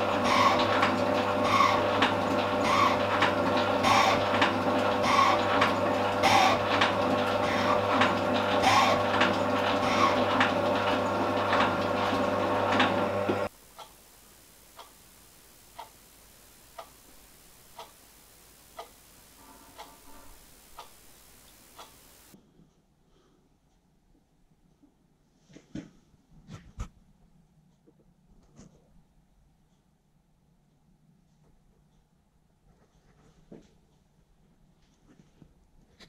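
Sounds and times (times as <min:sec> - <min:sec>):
machine tool motor hum: 0:00.0 - 0:22.4
faint ticking: 0:13.5 - 0:22.9.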